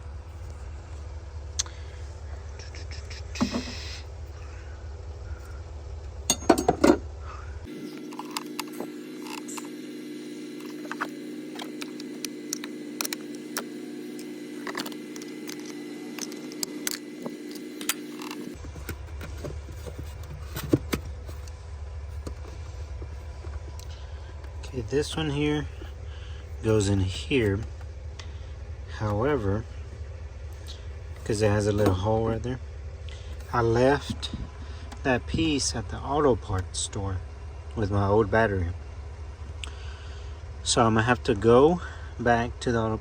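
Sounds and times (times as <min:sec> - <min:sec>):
different steady hum: 0:00.0 - 0:43.0
steady low hum: 0:00.0 - 0:43.0
metal tools clicking and clinking: 0:06.3 - 0:07.0.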